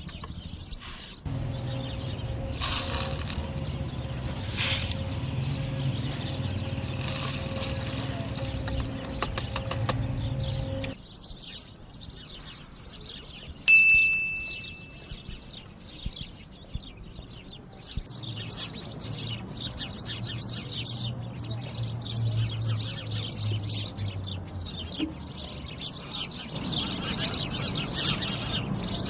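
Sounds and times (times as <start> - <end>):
small birds chirping: 0.0 - 29.0
low hum: 1.3 - 11.0
bright ding: 13.7 - 15.1.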